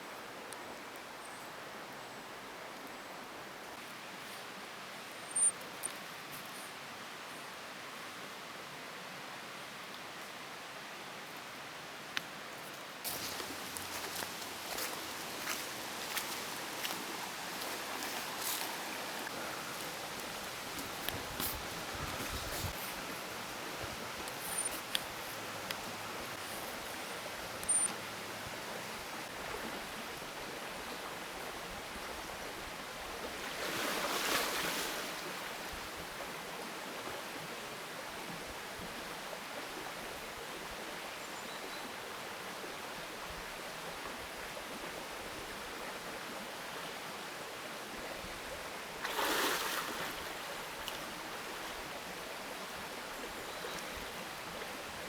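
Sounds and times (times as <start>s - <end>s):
water flowing: 12.9s - 30.8s.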